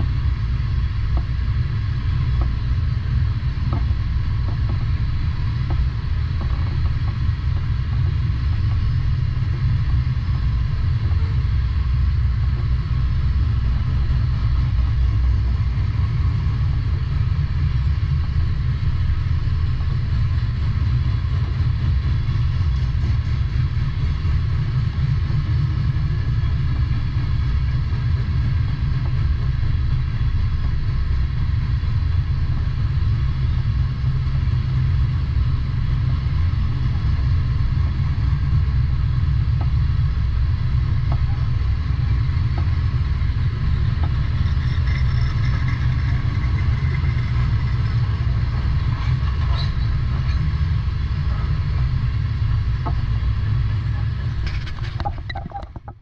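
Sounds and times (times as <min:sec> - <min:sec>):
freight train rumbling: 0:00.0 - 0:56.0.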